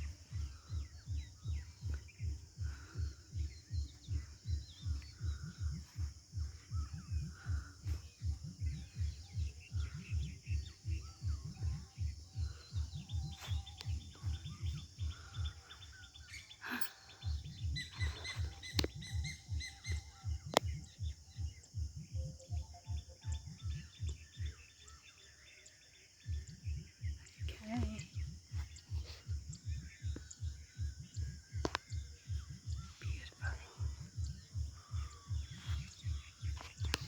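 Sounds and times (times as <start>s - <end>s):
rhythmic low thumping: 0.0s - 25.0s, 26.2s - 37.0s
birds chirping: 0.0s - 37.0s.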